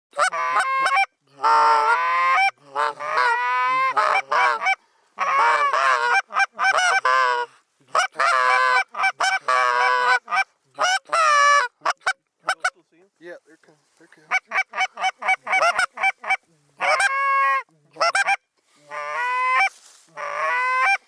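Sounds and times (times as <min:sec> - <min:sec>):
geese honking: 0:00.1 - 0:12.7, 0:14.3 - 0:21.0.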